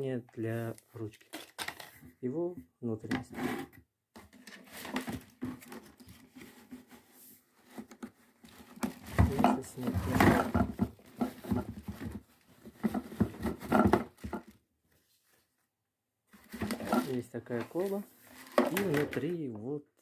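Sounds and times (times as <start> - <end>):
plastic parts clattering: 1.2 - 2.0, 7.9 - 14.5, 16.5 - 19.4.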